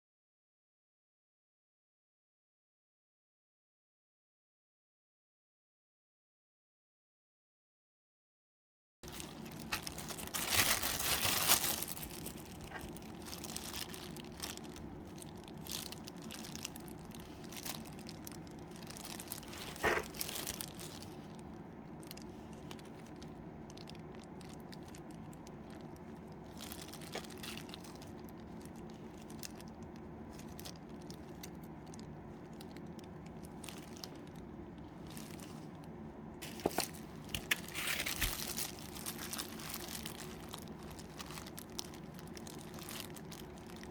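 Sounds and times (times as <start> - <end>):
steady low hum: 9.0 - 43.9.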